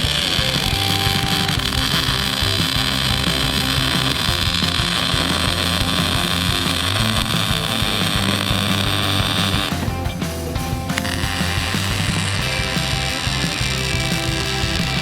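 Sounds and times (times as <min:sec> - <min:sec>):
background music: 0:00.0 - 0:15.0
power tool hissing on steel: 0:00.0 - 0:15.0.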